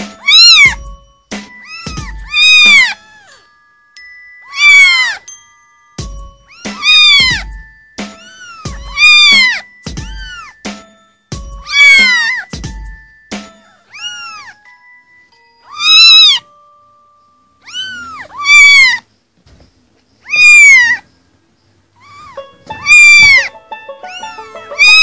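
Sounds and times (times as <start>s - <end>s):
kittens mewing: 0.2s - 0.8s, 1.5s - 3.5s, 4.4s - 5.3s, 6.4s - 10.6s, 11.6s - 12.6s, 13.5s - 14.6s, 15.6s - 16.4s, 17.6s - 19.1s, 20.2s - 21.1s, 21.9s - 25.0s.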